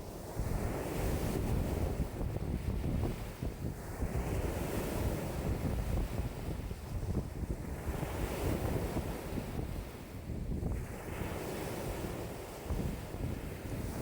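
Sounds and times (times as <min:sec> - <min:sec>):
lake waves washing in: 0:00.0 - 0:14.0
wind buffeting microphone: 0:00.0 - 0:14.0.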